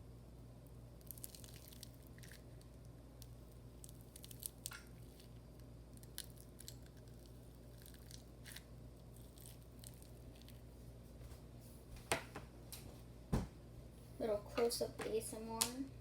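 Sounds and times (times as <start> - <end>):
low room hum: 0.0 - 16.0
slime crackling and popping: 1.0 - 10.7.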